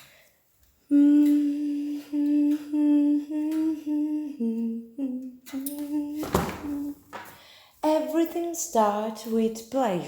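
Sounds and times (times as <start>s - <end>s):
person humming: 0.9s - 7.0s.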